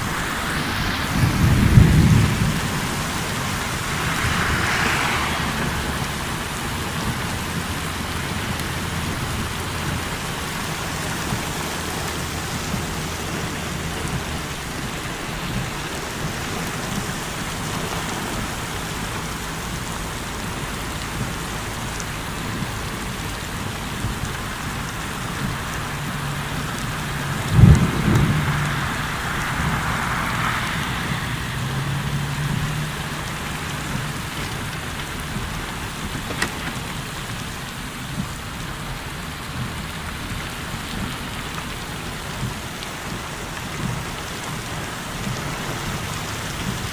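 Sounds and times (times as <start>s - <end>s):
low rolling thunder: 0.0s - 10.1s, 22.4s - 34.2s
heavy rain: 0.0s - 46.9s.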